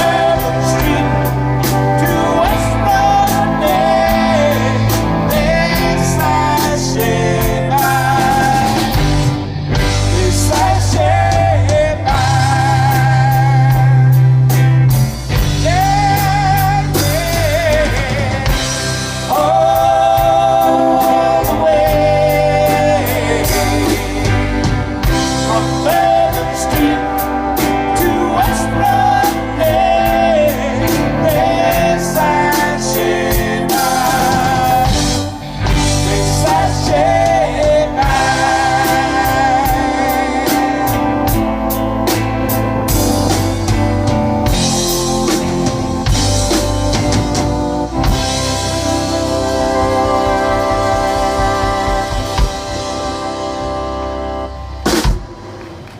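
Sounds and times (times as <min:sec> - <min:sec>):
person singing: 0:00.0 - 0:54.2
bass guitar: 0:00.0 - 0:55.9
drum kit: 0:00.0 - 0:55.9
electric guitar: 0:00.0 - 0:55.9.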